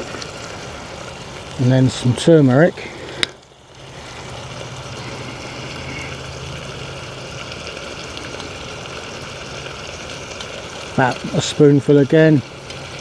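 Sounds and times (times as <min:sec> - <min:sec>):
low even hum: 0:00.0 - 0:11.3
chicken sizzling in a pot: 0:00.0 - 0:13.0.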